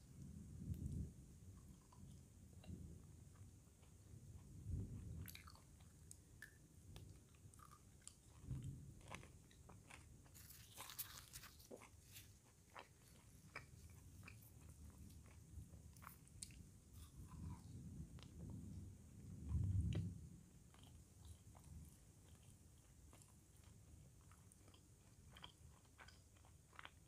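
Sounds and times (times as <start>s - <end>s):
chewing with wet mouth clicks: 1.6s - 18.5s, 20.7s - 27.0s
crisp crunching: 9.9s - 14.4s.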